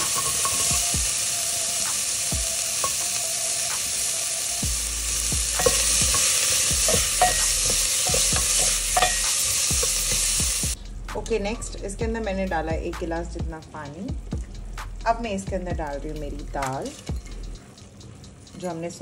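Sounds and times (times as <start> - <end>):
onions sizzling in hot oil: 0.0 - 10.8, 16.3 - 18.6.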